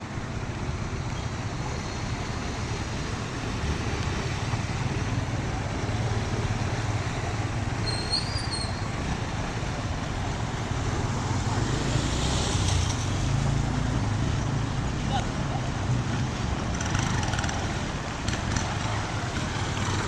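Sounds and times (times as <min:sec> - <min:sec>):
brief high whistle: 0:07.8 - 0:08.8.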